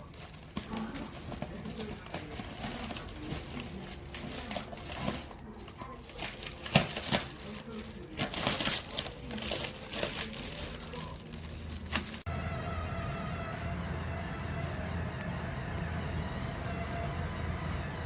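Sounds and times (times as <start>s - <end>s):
faint voices: 0.0s - 12.2s
crinkling and rustling: 0.0s - 12.3s.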